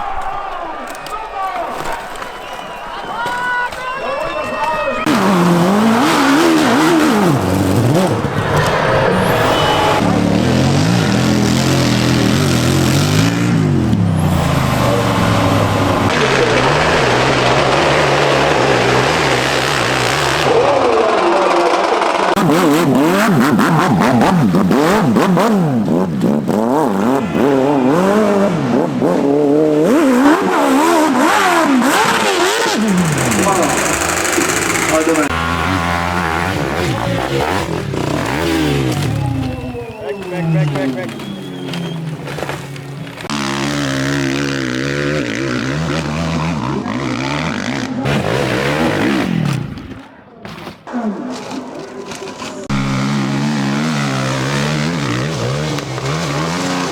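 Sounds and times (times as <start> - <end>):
dirt bike engine revving: 5.0 - 50.1, 52.3 - 56.9
clatter: 31.9 - 39.2.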